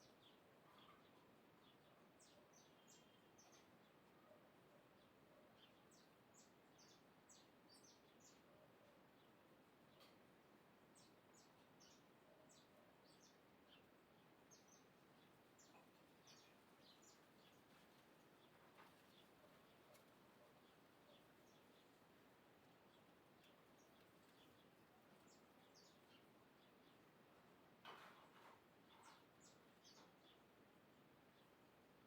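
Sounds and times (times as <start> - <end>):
faint bird chirps: 0.0 - 10.3, 10.9 - 22.0, 28.1 - 30.5
steady background hiss: 0.0 - 27.9, 28.6 - 32.0.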